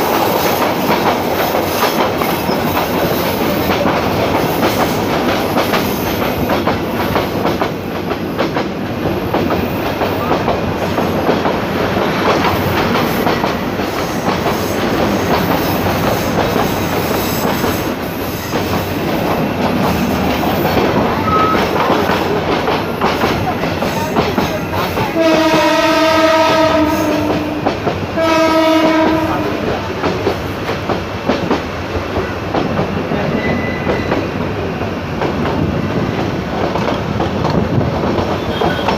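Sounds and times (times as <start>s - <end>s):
train wheels rumbling and clattering: 0.0s - 38.9s
train horn blasts: 21.2s - 21.8s, 25.2s - 29.9s.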